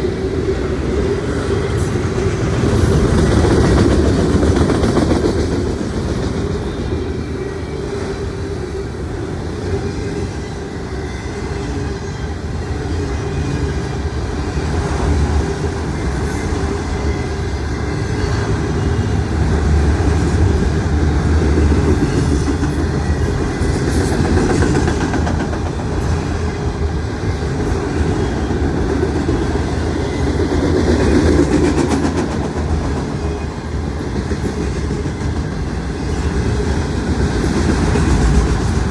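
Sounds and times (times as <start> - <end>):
freight train wheels rumbling: 0.0 - 38.9
wheels clacking over rail joints: 19.3 - 38.9.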